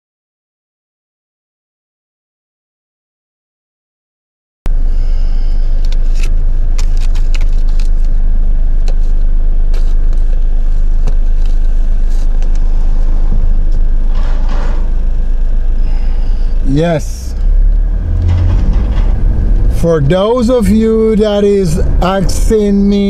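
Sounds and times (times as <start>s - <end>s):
loud low rumble: 4.7s - 23.0s.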